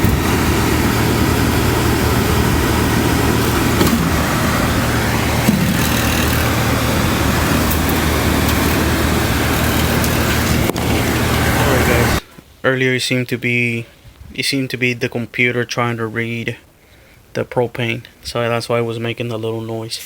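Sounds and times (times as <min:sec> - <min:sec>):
fan rattle: 0:00.0 - 0:12.2
furnace blower motor humming: 0:00.0 - 0:12.3.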